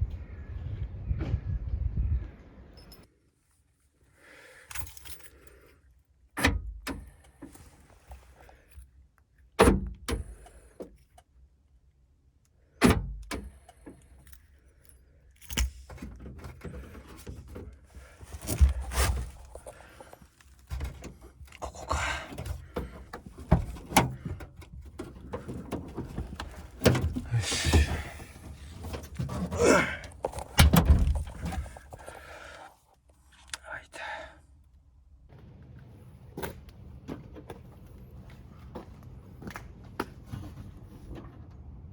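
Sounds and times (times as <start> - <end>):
keys jangling: 4.7 - 5.6
car door clunks and clicks: 6.4 - 7.1, 9.6 - 10.6, 12.8 - 13.6, 22.1 - 32.1.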